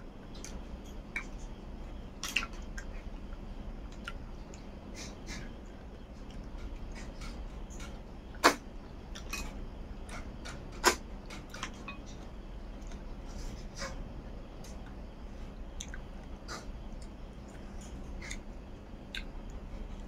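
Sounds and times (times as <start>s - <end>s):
chewing with mouth clicks: 2.2s - 8.0s, 15.7s - 20.0s.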